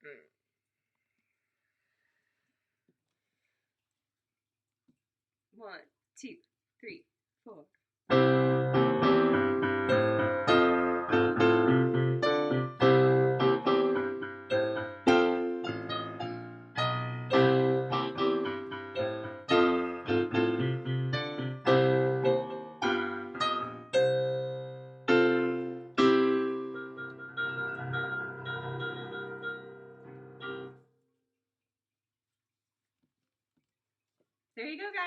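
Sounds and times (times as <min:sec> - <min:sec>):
slow blues piano: 0:08.1 - 0:30.8.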